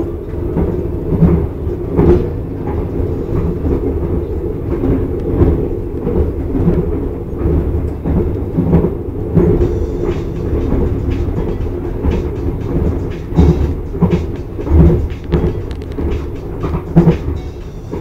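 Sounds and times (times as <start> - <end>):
train rumbling inside carriage: 0.0 - 18.0
knocks and rattles: 4.8 - 18.0.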